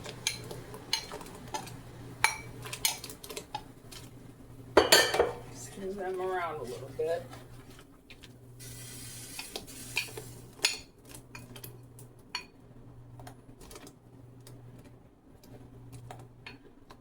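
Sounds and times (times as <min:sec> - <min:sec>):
boiling water: 0:00.0 - 0:17.0
low steady hum: 0:00.0 - 0:17.0.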